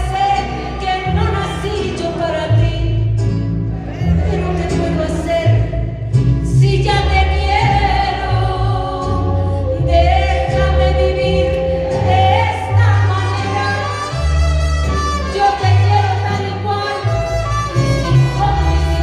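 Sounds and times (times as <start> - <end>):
band playing: 3.6 - 19.0
woman singing a ballad: 6.4 - 14.2.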